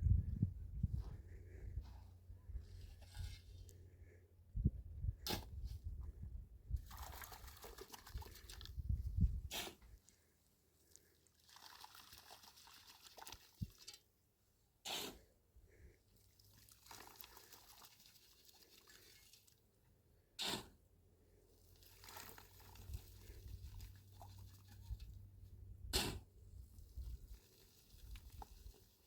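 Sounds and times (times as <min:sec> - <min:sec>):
liquid pouring: 0:11.4 - 0:13.8, 0:16.6 - 0:19.3.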